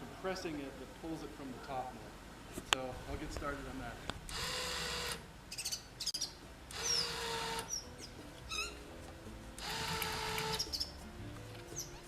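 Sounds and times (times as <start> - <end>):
electric winch motor whine: 4.3 - 5.2, 6.7 - 7.7, 9.6 - 10.6
birds chirping: 5.5 - 8.8, 10.4 - 11.0, 11.6 - 12.0.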